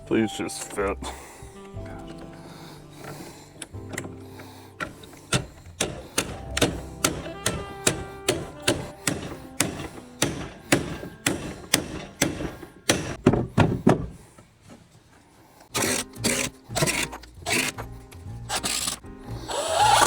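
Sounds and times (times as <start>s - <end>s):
hammer knocking on wood: 4.8s - 14.2s.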